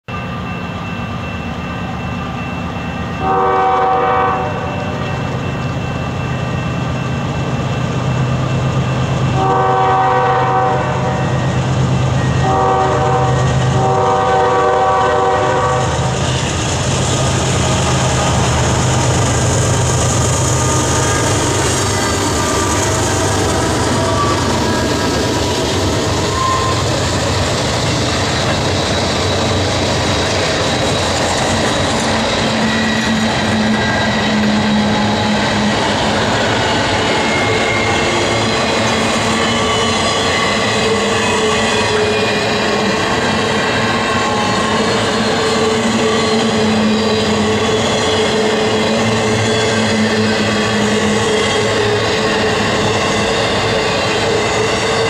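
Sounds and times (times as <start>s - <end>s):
locomotive engine: 0.1s - 55.0s
locomotive horn: 3.2s - 4.9s, 9.3s - 11.4s, 12.4s - 16.2s, 26.3s - 27.0s
wheels on rails: 15.5s - 55.0s.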